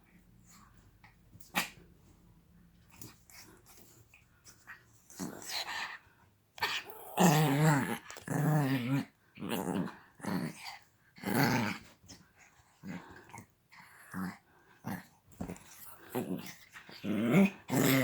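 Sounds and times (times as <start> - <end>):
dog growling: 6.6 - 11.9, 15.7 - 18.0.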